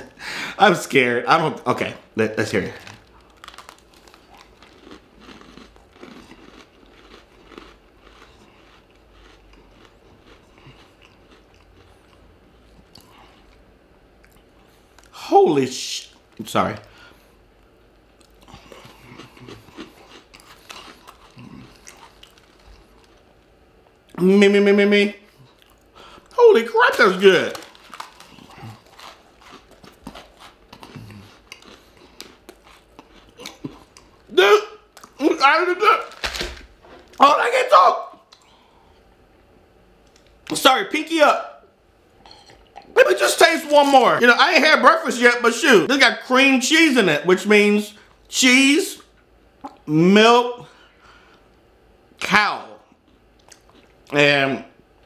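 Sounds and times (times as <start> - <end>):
cookie crunching and chewing: 1.7 - 15.3, 18.1 - 24.2, 25.3 - 37.3, 53.0 - 54.2.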